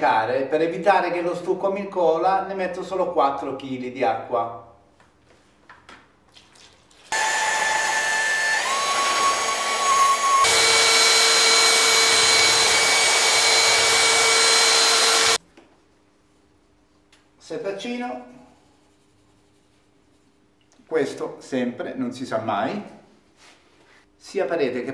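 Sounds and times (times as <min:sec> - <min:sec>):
electric paddle mixer whine: 0:07.2 - 0:15.4.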